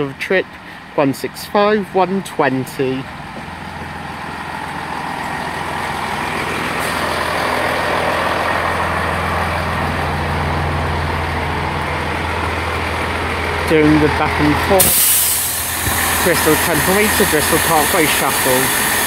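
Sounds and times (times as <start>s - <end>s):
diesel train engines droning: 0.0s - 19.0s.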